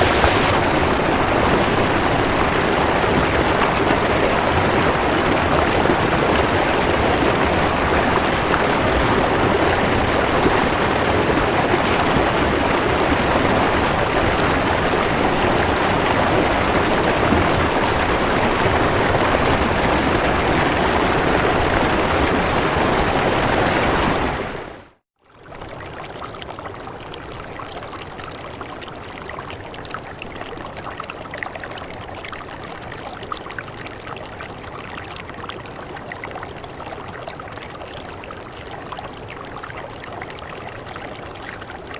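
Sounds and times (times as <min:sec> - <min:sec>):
dense rain: 0:00.0 - 0:24.6.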